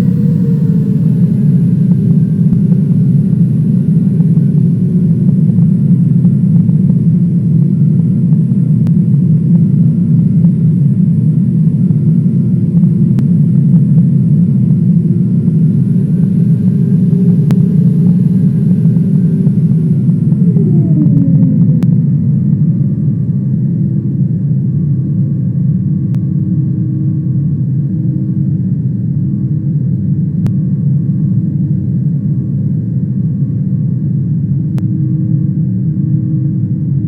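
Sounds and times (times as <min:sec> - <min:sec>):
airliner engines rumbling: 0:00.0 - 0:07.6, 0:13.0 - 0:23.2.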